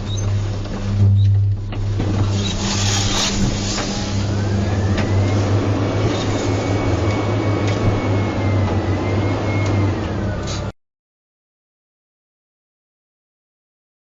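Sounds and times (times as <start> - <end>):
car driving road rumble: 0.0 - 10.7.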